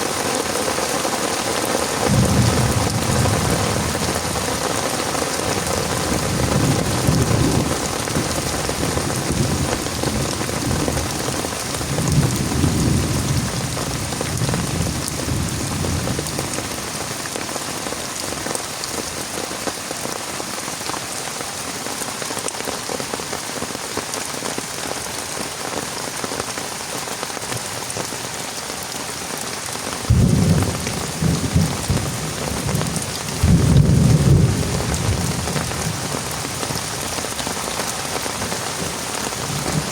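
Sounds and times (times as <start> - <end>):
heavy rain: 0.0 - 39.9
thunder rumbles: 2.0 - 16.8, 30.1 - 37.1, 38.8 - 39.9.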